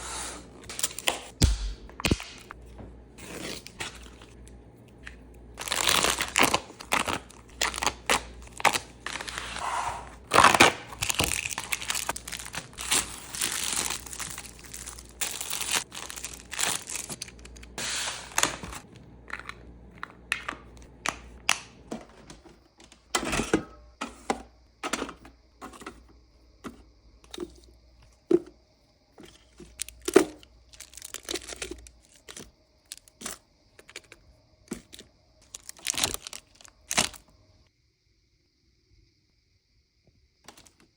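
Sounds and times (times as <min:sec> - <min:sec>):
plastic packaging crinkling and tearing: 0:05.6 - 0:09.6, 0:10.2 - 0:18.9, 0:29.6 - 0:37.3.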